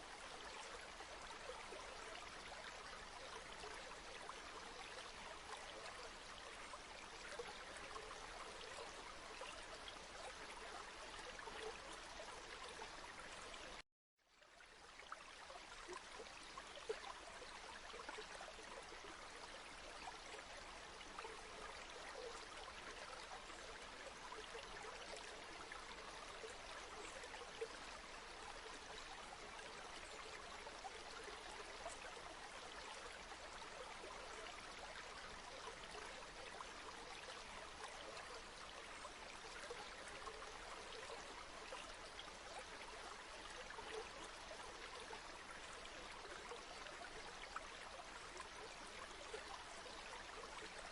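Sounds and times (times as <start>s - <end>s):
water splashes and trickles: 0.0s - 50.9s
river flowing: 14.5s - 50.9s.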